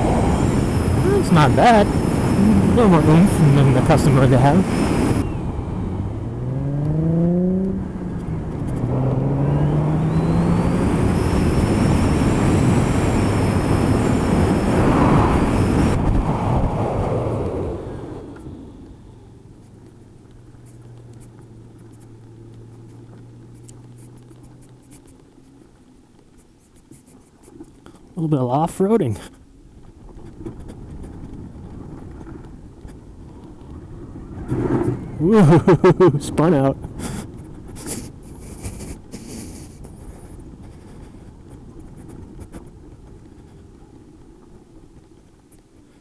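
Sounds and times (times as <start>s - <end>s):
electric motorcycle humming: 0.0s - 46.0s
wind: 0.0s - 46.0s
light ticks: 19.6s - 28.1s
scratchy crackles: 36.8s - 46.0s.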